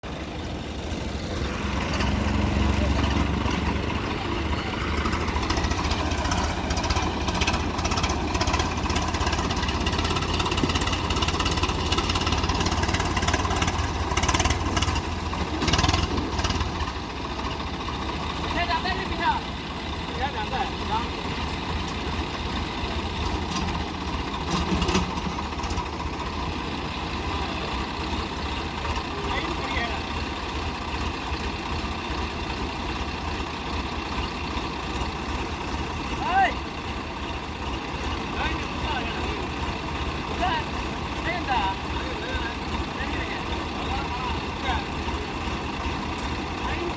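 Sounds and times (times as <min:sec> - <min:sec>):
tractor diesel engines rumbling: 0:00.0 - 0:46.9.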